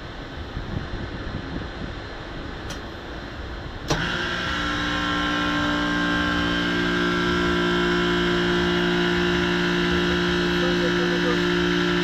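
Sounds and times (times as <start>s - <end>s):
compressor humming: 2.6s - 12.0s.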